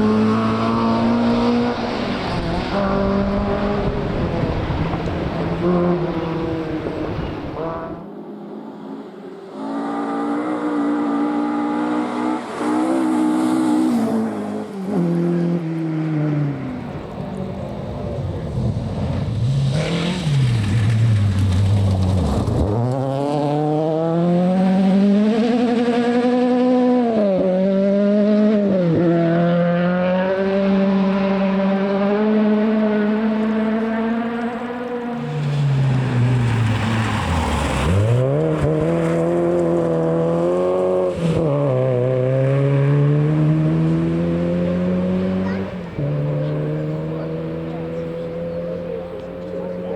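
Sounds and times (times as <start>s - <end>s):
rally car engine revving: 0.0s - 49.9s.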